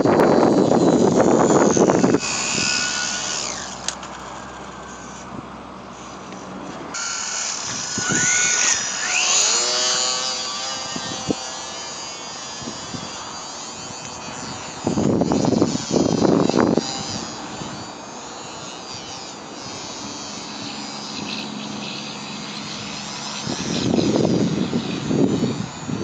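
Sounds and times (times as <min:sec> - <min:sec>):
wind gusts on microphone: 0:00.0 - 0:03.7, 0:06.8 - 0:11.6, 0:12.4 - 0:20.2, 0:22.6 - 0:26.0
model plane motor whining: 0:00.0 - 0:26.0.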